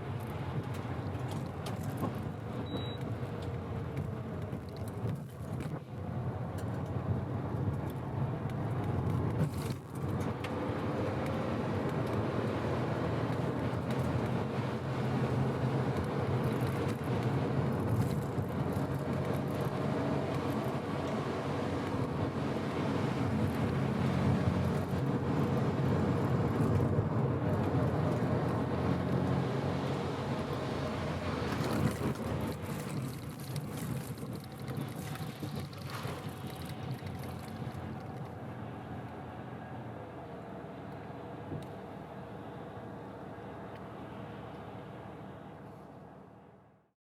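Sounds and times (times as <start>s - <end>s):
road noise: 0.0s - 46.8s
short high beep: 2.6s - 3.0s.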